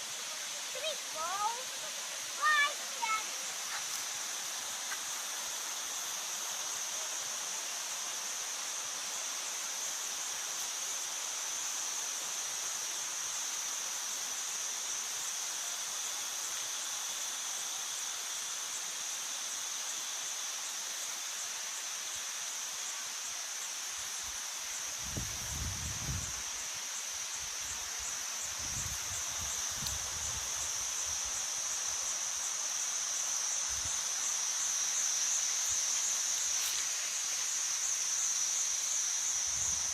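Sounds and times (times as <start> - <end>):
waterfall rushing: 0.0 - 3.8.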